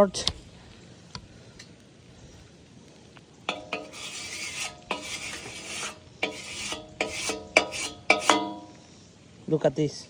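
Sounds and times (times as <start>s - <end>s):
sheet metal scraping: 3.5s - 8.8s.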